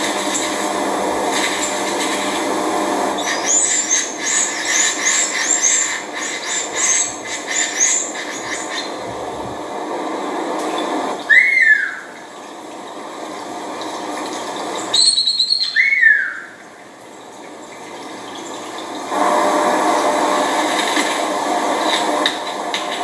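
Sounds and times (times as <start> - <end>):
bird singing: 3.2 - 9.6, 10.8 - 13.1, 14.8 - 17.3.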